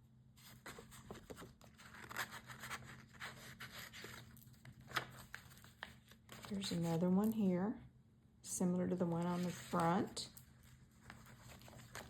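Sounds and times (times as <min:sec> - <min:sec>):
paper pages rustling: 0:00.4 - 0:07.0, 0:09.1 - 0:12.0.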